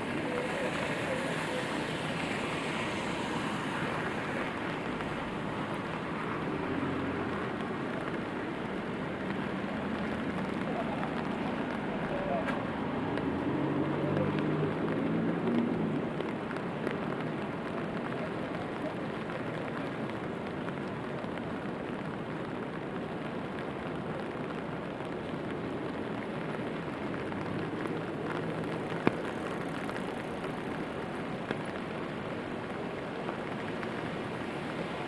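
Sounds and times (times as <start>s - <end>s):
steady rainfall: 0.0s - 35.0s.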